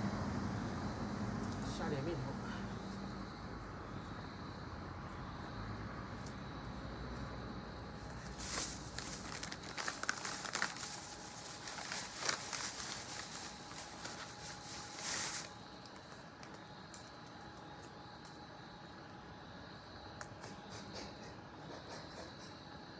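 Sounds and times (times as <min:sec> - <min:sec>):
plastic bag crinkling: 0:08.3 - 0:16.6.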